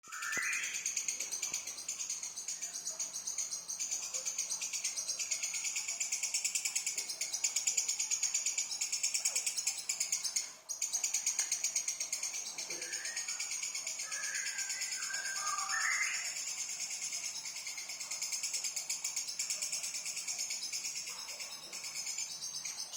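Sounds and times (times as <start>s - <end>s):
songbird singing high trill: 0.0s - 1.1s, 12.8s - 16.4s.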